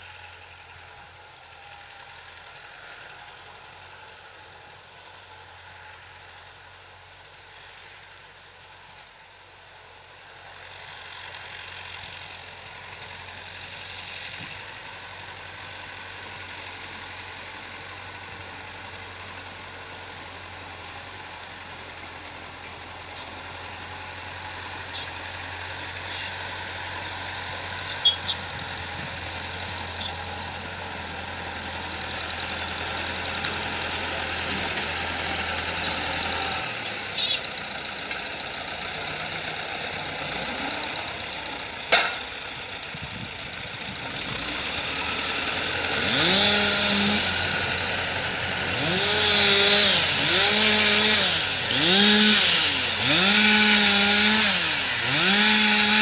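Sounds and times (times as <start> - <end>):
engine running steadily: 0.0 - 56.0
chainsaw revving: 29.2 - 41.8, 43.8 - 56.0.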